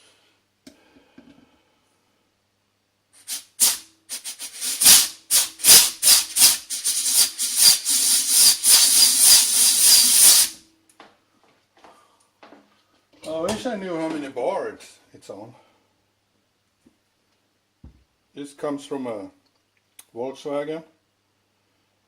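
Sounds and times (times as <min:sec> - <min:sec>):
compressed air hissing bursts: 0:03.2 - 0:10.6.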